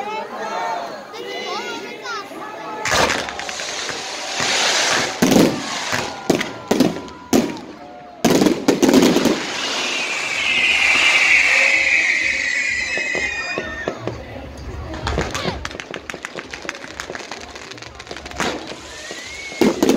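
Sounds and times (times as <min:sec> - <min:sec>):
fireworks bangs: 0:02.8 - 0:19.9
firework whistle falling in pitch: 0:09.2 - 0:14.2, 0:18.4 - 0:19.9.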